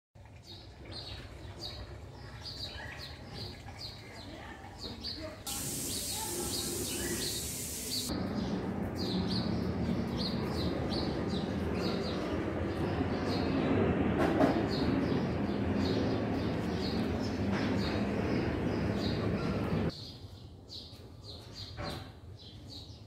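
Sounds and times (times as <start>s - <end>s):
outdoor background noise: 0.2s - 23.0s
bird chirping: 4.8s - 13.6s
hiss: 5.5s - 8.1s.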